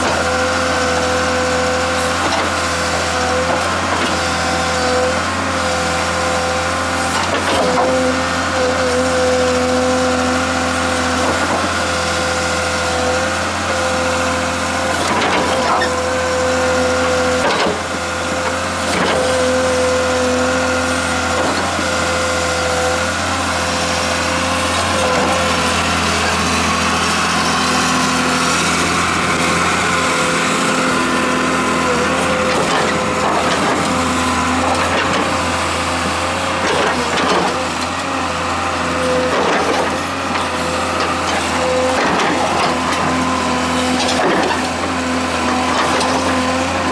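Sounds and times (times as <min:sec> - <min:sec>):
excavator diesel engine running: 0:00.0 - 0:46.9
machine knocks and clanks: 0:36.6 - 0:37.7.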